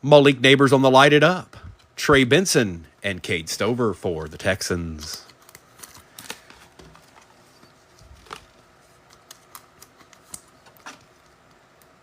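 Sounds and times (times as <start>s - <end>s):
trading cards being handled: 4.3s - 12.0s.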